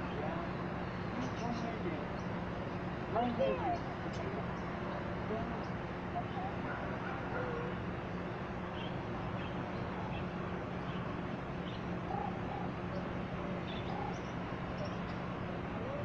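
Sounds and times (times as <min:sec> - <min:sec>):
birds chirping: 0:00.0 - 0:16.0
steady low hum: 0:00.0 - 0:16.0
low bird calls: 0:08.6 - 0:16.0.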